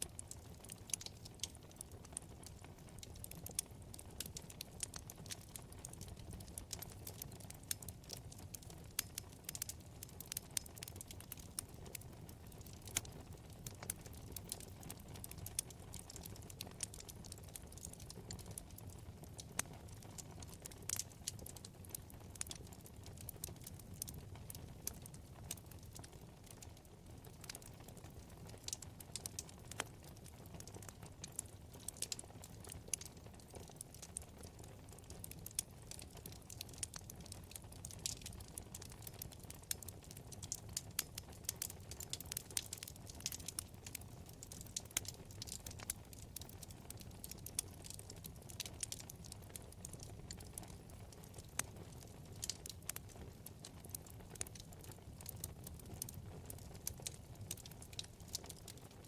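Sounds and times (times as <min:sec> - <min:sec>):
low rumble of flames: 0:00.0 - 0:59.0
wood crackling and popping: 0:00.0 - 0:59.0.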